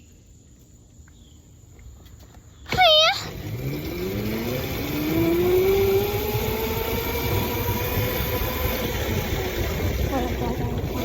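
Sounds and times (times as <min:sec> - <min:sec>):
motorbike pulling away: 0:02.8 - 0:11.0.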